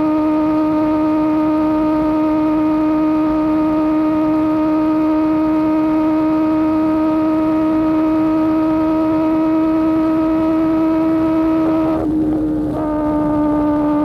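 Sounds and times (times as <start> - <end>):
motorcycle engine droning: 0.0 - 14.0.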